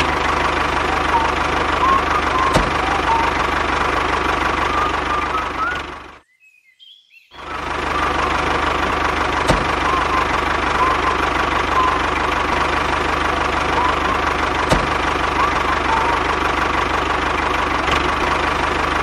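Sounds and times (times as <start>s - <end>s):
tractor engine chugging: 0.0s - 6.2s, 7.4s - 19.0s
birds chirping: 0.7s - 8.4s, 9.5s - 12.3s, 13.7s - 16.4s.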